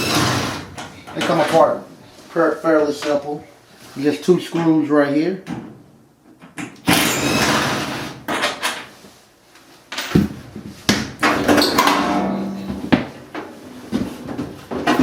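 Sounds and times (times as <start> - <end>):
metal knocks and clanks: 11.2 - 15.0
sheet metal scraping: 11.4 - 14.2
brief metallic ringing tone: 11.8 - 12.9.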